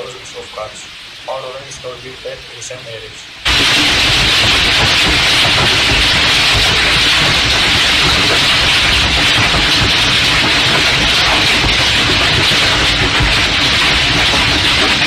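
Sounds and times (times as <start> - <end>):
hail and heavy rain pelting: 0.0 - 15.0
low rumble: 3.5 - 15.0.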